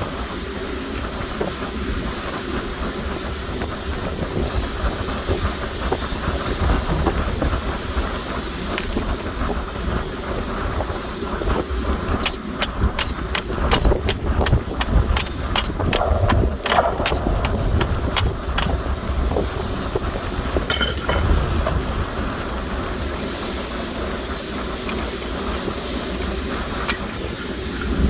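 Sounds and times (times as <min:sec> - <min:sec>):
sharp ticks: 0:12.2 - 0:18.8.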